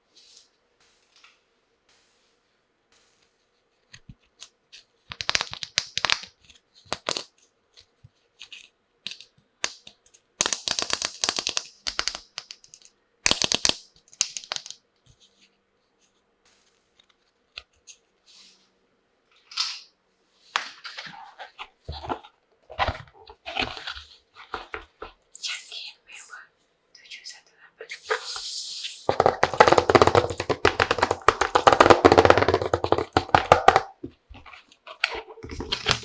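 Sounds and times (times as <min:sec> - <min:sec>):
plastic toy pieces clicking: 0:05.1 - 0:07.3, 0:09.0 - 0:14.8, 0:29.1 - 0:34.1
plastic packaging crinkling: 0:27.9 - 0:36.0.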